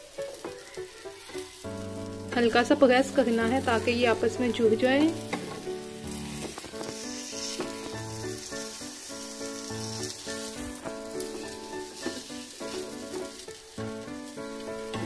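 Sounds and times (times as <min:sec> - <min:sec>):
omelette sizzling in oil: 0:00.0 - 0:15.0
soft instrumental melody: 0:00.0 - 0:15.0.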